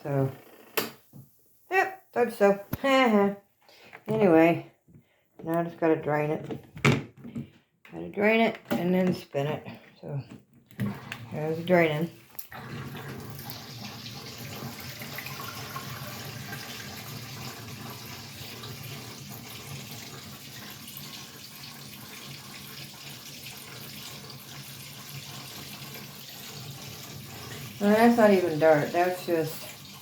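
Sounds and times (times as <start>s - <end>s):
water draining: 10.7s - 30.0s.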